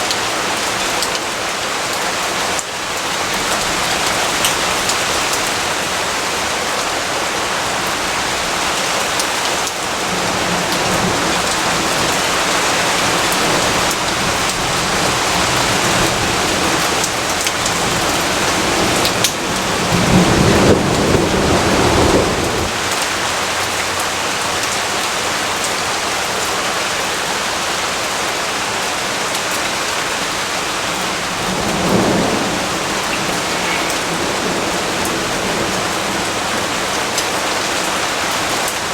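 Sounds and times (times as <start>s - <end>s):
heavy rain: 0.0s - 38.9s
thunder rumbling: 10.0s - 23.1s, 30.7s - 37.7s.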